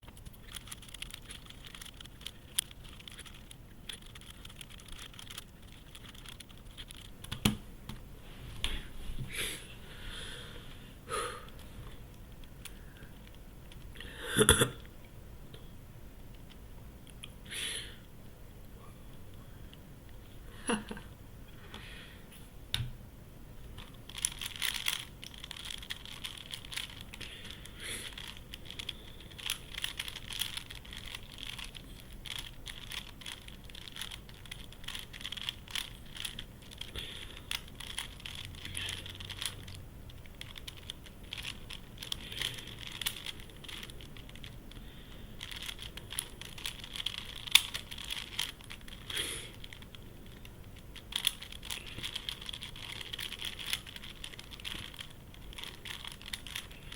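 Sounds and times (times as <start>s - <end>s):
plastic puzzle clicking: 0.2s - 7.6s, 24.1s - 44.6s, 45.4s - 50.4s, 51.0s - 56.8s.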